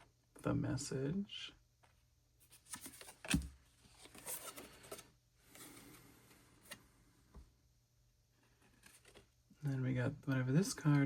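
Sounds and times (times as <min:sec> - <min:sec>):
paper rustling: 0:02.4 - 0:06.0.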